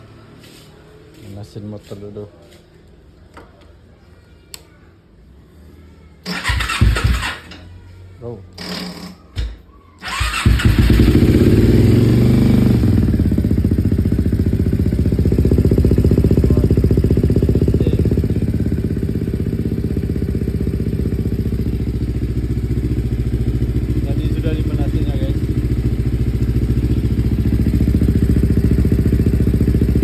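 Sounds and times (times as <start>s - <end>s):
motorcycle engine starting and idling: 6.2s - 7.8s, 10.0s - 30.0s.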